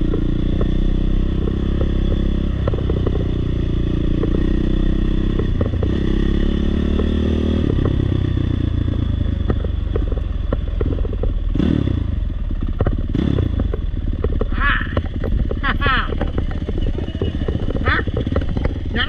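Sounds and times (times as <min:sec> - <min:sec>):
short knocks and clatter: 0:00.0 - 0:03.4, 0:07.0 - 0:11.6, 0:12.5 - 0:19.0
dirt bike engine: 0:00.0 - 0:19.0.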